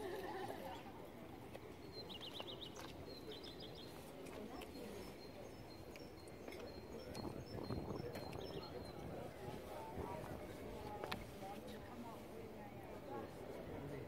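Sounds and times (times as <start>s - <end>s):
small songbird singing: 1.9s - 9.0s.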